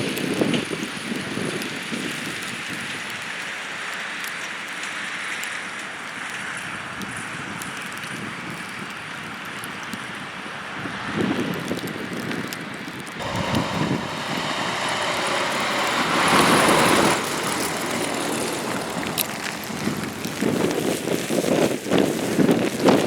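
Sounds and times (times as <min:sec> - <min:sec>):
wind rumbling on microphone: 0:10.8 - 0:23.0
tyres hissing past: 0:13.2 - 0:20.9.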